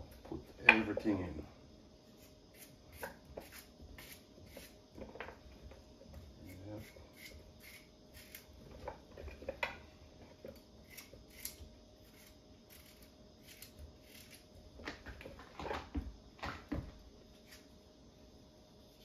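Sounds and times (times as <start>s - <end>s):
knocks and thumps: 14.8s - 17.0s.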